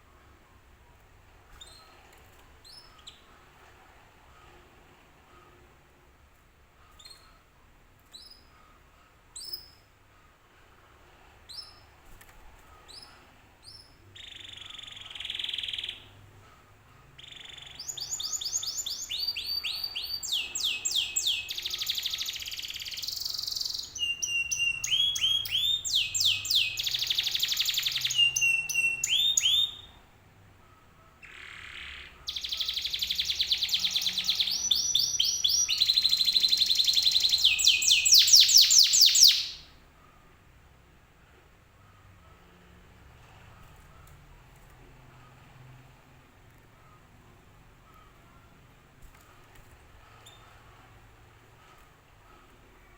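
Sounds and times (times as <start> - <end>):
canary singing trills: 12.8 - 16.3, 17.2 - 30.0, 31.2 - 39.7.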